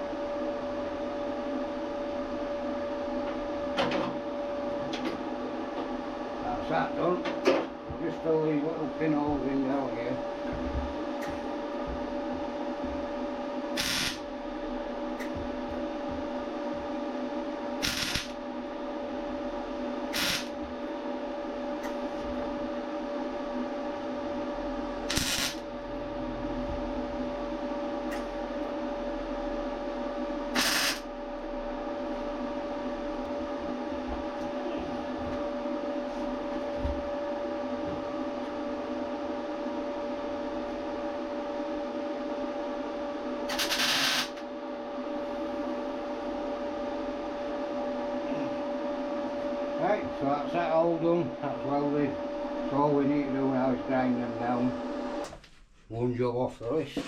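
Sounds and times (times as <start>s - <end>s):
steady background hum: 0.0s - 57.0s
welding arc crackling bursts: 13.8s - 14.3s, 17.8s - 18.4s, 20.1s - 20.6s, 25.1s - 25.6s, 30.6s - 31.1s, 43.5s - 44.4s.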